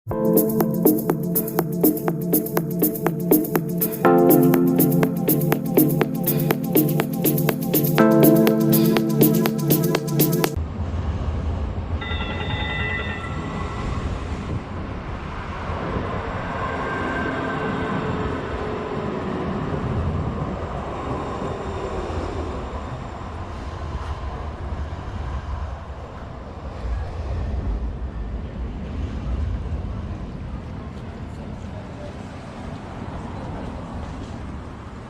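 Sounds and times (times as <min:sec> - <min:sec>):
high ringing tone: 0:12.0 - 0:13.8.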